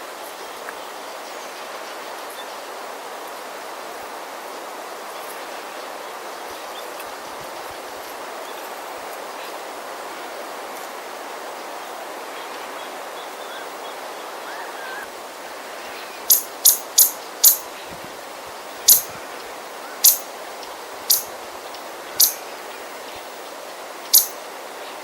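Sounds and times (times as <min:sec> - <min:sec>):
breeze hissing: 0:02.8 - 0:25.0
small bird scolding chips: 0:16.3 - 0:17.7, 0:18.9 - 0:19.1, 0:20.0 - 0:20.3, 0:21.1 - 0:21.3, 0:22.2 - 0:22.4, 0:24.1 - 0:24.4.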